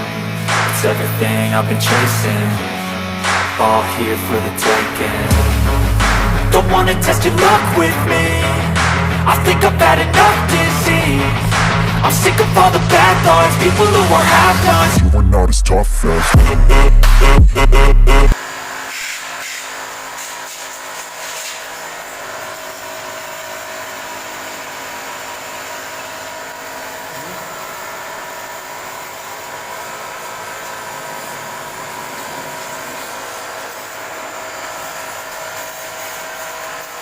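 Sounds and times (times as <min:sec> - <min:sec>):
continuous rushing hiss: 0:18.7 - 0:37.0
small electric motor whine: 0:21.5 - 0:37.0.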